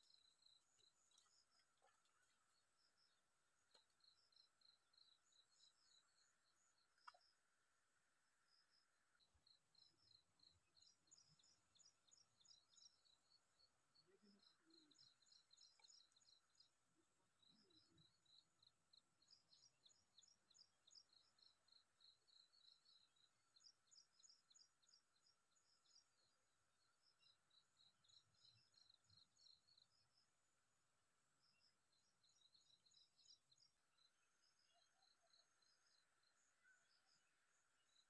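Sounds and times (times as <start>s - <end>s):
faint bird song: 0.0s - 38.0s.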